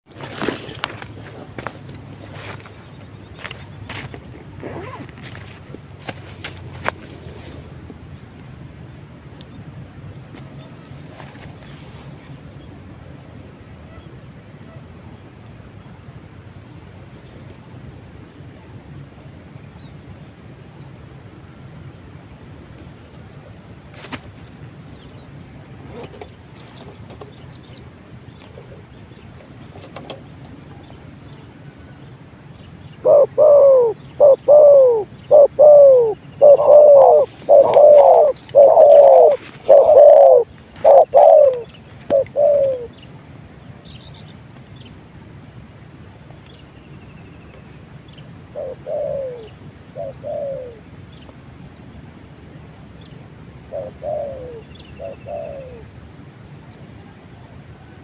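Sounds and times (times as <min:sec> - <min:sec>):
dove cooing: 0:00.0 - 0:08.3, 0:32.8 - 0:43.1, 0:48.4 - 0:50.9, 0:53.6 - 0:55.9
high insect trill: 0:00.0 - 0:58.0.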